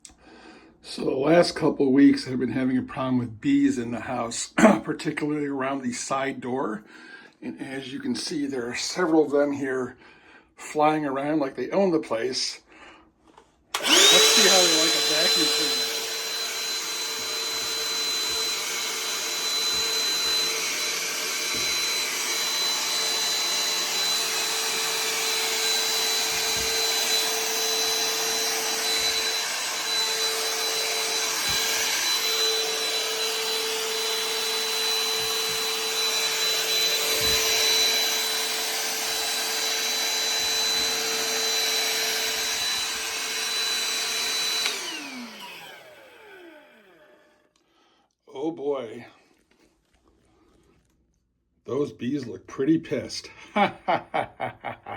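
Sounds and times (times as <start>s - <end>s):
vacuum whine: 13.7s - 47.4s
motor winding down: 13.8s - 47.4s.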